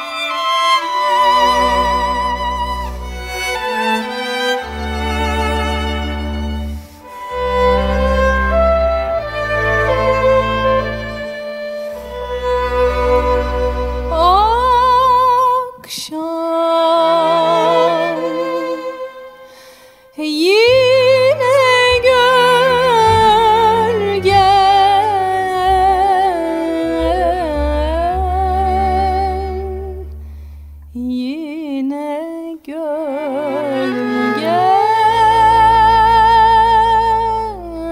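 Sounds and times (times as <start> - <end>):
held low bass notes: 0.0 - 15.3, 20.6 - 31.4
person singing long wavering notes: 20.5 - 30.1, 32.8 - 37.9.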